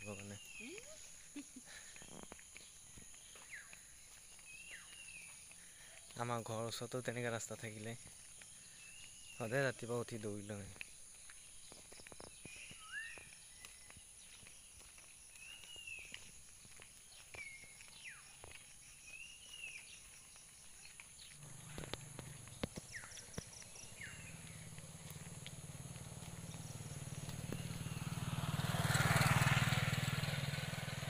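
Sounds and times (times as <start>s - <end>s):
footsteps on paved road: 0.0s - 30.6s
bird calling: 19.0s - 28.2s
distant vehicle engine hum: 21.4s - 31.0s.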